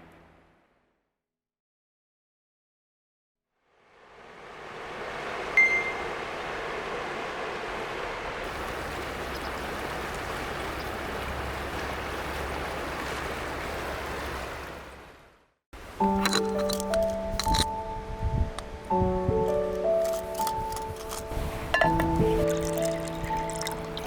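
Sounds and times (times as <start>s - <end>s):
river rushing over stones: 4.5s - 15.2s, 19.5s - 24.0s.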